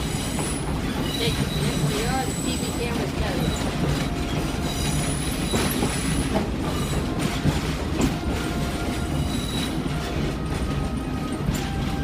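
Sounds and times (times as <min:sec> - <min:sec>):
faint high wheel squeals: 0:00.0 - 0:12.0
train rumble and rattle: 0:00.0 - 0:12.0.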